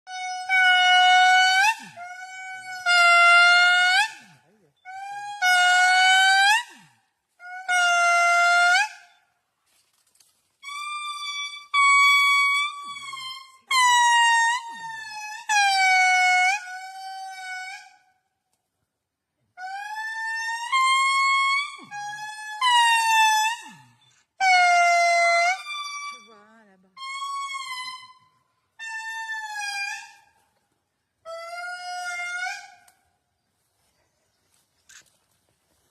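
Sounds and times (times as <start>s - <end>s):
lemurs wailing calls: 31.3s - 32.9s.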